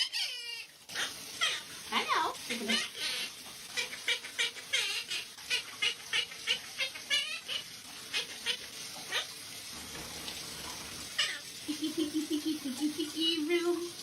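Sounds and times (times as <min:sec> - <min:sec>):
parrot warbling call: 0:00.0 - 0:01.7, 0:11.2 - 0:11.5.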